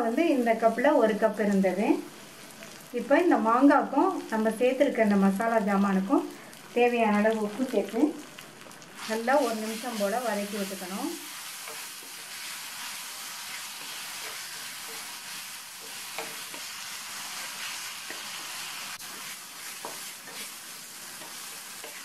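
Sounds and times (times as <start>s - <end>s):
food sizzling in oil: 0.0s - 22.0s
spatula scraping and knocking pan: 11.4s - 22.0s.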